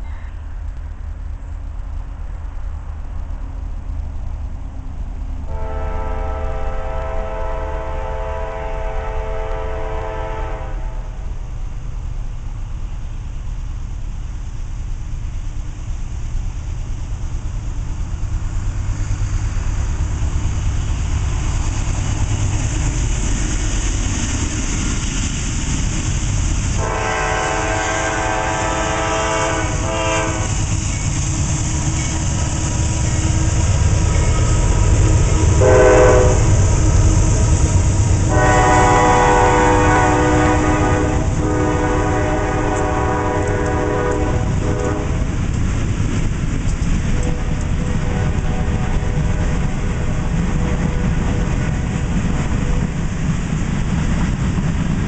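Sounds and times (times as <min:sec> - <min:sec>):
diesel locomotives rumbling: 0:00.0 - 0:55.0
train air horn blasts: 0:05.5 - 0:11.2, 0:26.8 - 0:45.3, 0:47.1 - 0:52.0.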